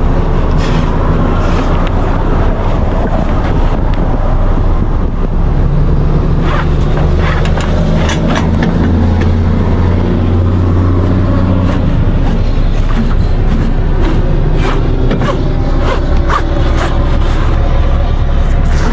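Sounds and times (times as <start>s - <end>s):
vehicle engine droning: 0.0s - 18.9s.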